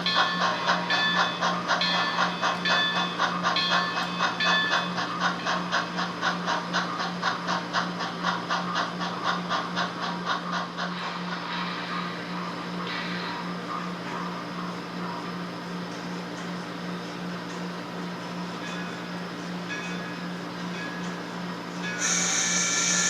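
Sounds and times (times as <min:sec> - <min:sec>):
model train steam chuffing: 0:00.0 - 0:15.2, 0:21.8 - 0:23.0.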